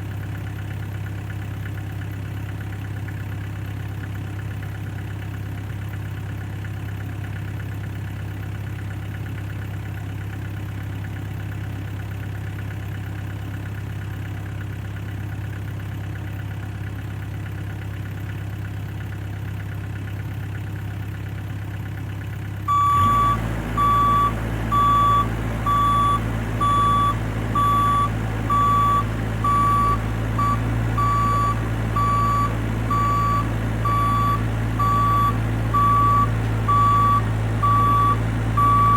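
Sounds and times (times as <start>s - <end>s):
mini excavator engine idling: 0.0s - 38.9s
travel alarm beeping: 22.7s - 38.9s.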